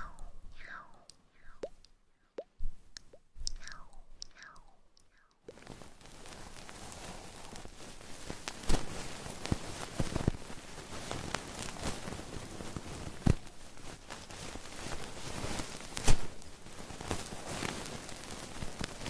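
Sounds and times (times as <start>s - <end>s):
steady hiss: 5.5s - 19.0s.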